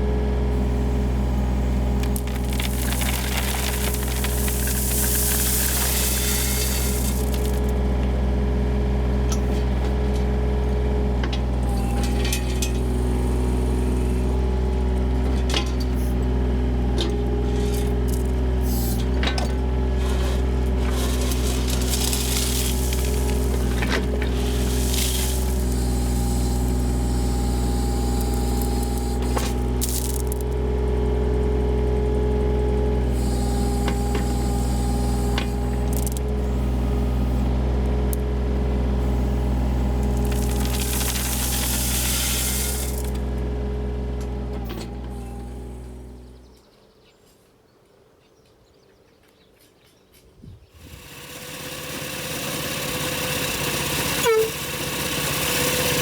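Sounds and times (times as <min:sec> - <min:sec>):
engine with steady tone: 0:00.0 - 0:46.7, 0:50.7 - 0:56.0
small petrol engine running: 0:00.6 - 0:08.6, 0:17.3 - 0:46.4, 0:50.8 - 0:56.0.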